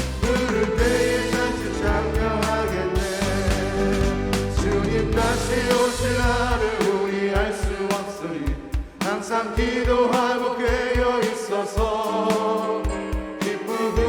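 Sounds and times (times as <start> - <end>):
low drum beat: 0.0 - 11.2
band accompaniment: 0.0 - 14.0
group singing worship song: 0.0 - 14.0.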